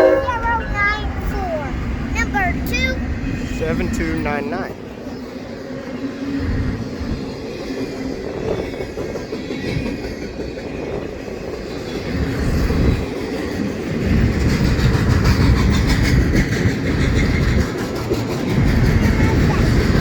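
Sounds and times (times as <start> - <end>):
freight train rumble: 0.0 - 20.0
wheels clacking over rail joints: 6.3 - 20.0.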